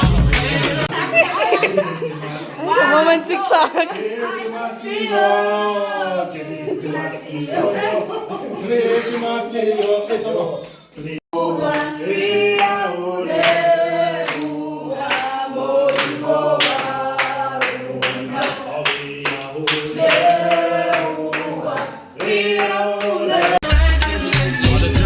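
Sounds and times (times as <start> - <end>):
group singing: 0.0 - 24.1
hand clapping: 13.4 - 13.6, 14.2 - 23.6.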